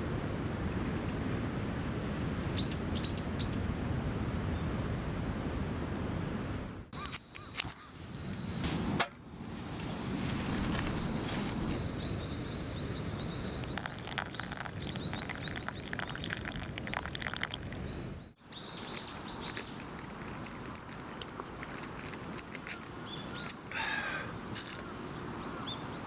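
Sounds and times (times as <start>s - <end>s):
bird chirping: 7.0s - 16.6s
sharp crackles: 7.0s - 17.4s
low outdoor rush: 7.0s - 18.2s.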